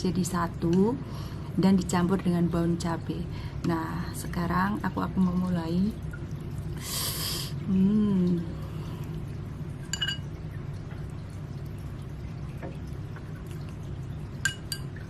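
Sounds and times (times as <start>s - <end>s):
steady low hum: 0.0s - 15.0s
utensil clinking against bowl: 9.9s - 10.3s, 14.4s - 14.9s.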